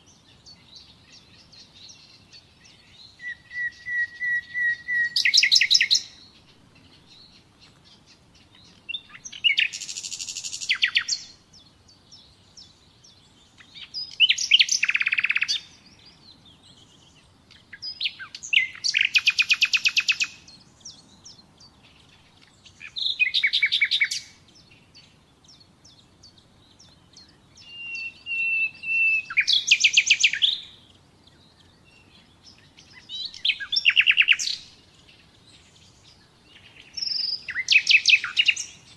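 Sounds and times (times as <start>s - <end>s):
nightingale singing trills: 0.0s - 38.9s.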